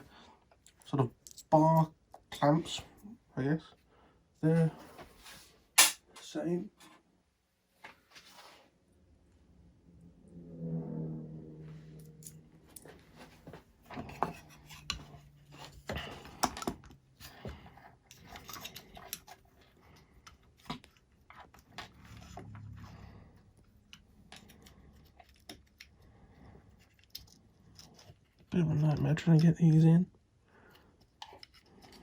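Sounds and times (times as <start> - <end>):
small screws clicking and scraping: 13.9 - 22.8, 23.4 - 29.9, 30.7 - 32.0.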